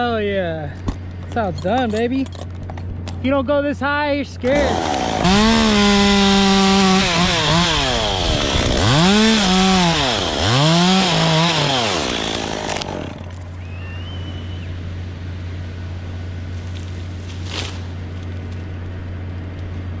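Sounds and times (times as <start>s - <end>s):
chainsaw revving and cutting: 4.4s - 13.6s.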